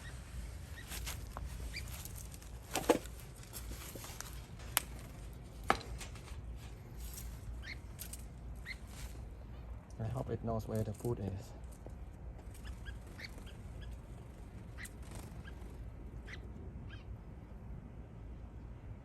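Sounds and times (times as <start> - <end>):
small birds chirping: 0.0 - 10.2, 10.8 - 17.3
low steady hum: 0.0 - 19.0.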